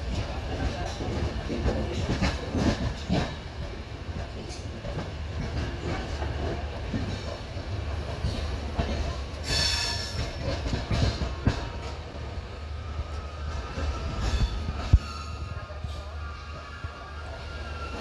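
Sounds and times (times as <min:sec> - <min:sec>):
train rumbling on track: 0:00.0 - 0:18.0
high-pitched wheel squeal: 0:13.0 - 0:17.0.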